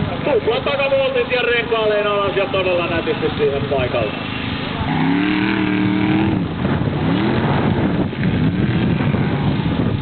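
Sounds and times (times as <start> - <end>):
car engine revving hard: 4.2 - 10.0.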